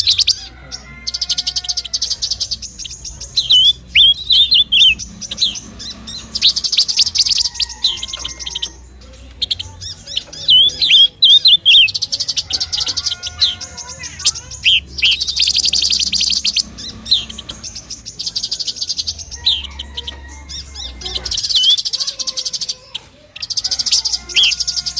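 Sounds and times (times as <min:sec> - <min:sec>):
bird whistling and chattering trills: 0:00.0 - 0:24.9.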